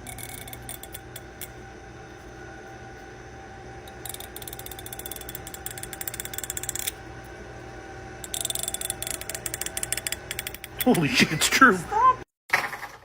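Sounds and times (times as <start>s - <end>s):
fingernail along comb teeth: 0.0s - 1.6s, 3.9s - 7.0s, 8.2s - 10.9s.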